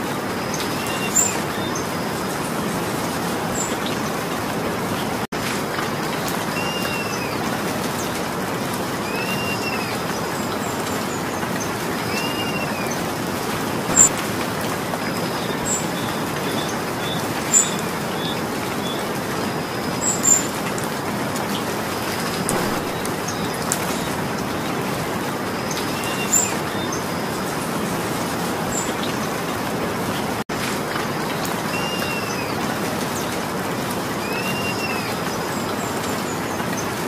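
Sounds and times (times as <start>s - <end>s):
steady rain falling: 0.0s - 37.0s
bird chirp: 13.9s - 14.2s, 22.5s - 24.2s.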